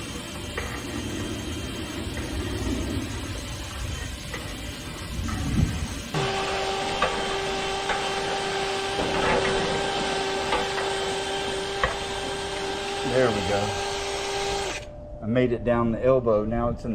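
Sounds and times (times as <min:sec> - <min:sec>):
power drill running: 0:06.1 - 0:14.9.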